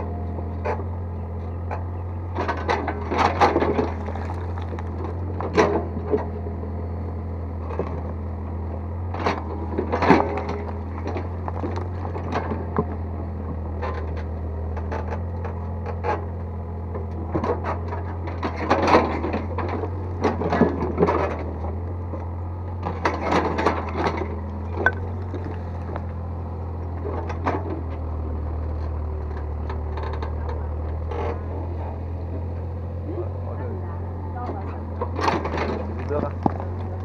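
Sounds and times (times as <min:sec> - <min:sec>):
diesel engine running: 0:00.0 - 0:37.0
bucket scraping and knocking: 0:03.4 - 0:05.3, 0:24.8 - 0:26.0.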